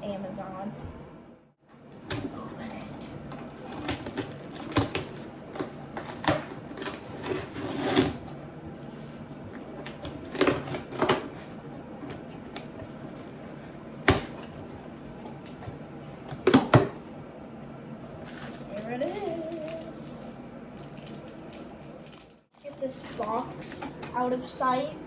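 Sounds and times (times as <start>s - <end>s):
box packaging rustling and scraping: 1.9s - 17.1s, 18.0s - 20.0s, 20.8s - 24.0s.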